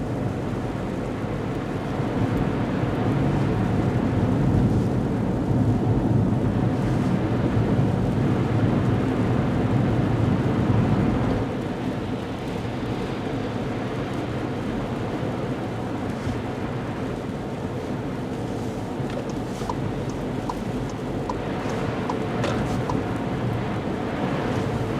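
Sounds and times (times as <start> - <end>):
road and tyre rumble: 0.0 - 24.9
faint regular ticks: 19.1 - 22.2.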